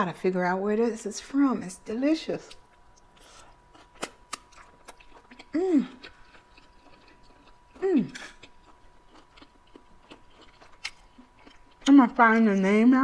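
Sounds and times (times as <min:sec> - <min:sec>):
person chewing noodles: 0:03.0 - 0:11.9
woman humming mmm: 0:05.4 - 0:06.2, 0:07.7 - 0:08.4.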